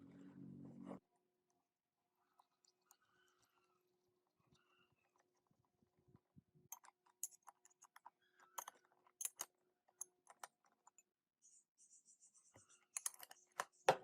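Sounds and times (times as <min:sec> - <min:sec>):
small metal parts clinking: 0:06.7 - 0:11.0, 0:12.8 - 0:13.6.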